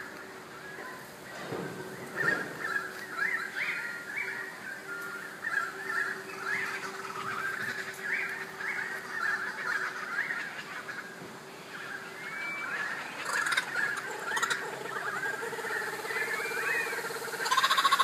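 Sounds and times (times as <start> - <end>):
birds calling: 0.0 - 18.0
faint steady hum: 0.0 - 18.0.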